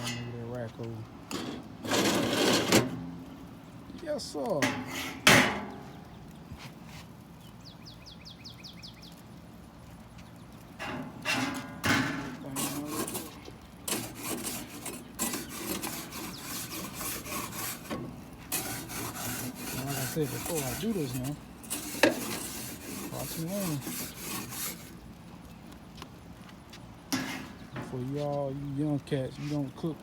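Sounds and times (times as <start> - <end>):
metal grill rack clank: 0.0 - 0.5, 1.3 - 3.4, 4.4 - 6.2, 10.7 - 24.9, 27.1 - 28.1
metal scraping charcoal grill: 0.0 - 7.7, 9.7 - 25.7, 26.9 - 30.0.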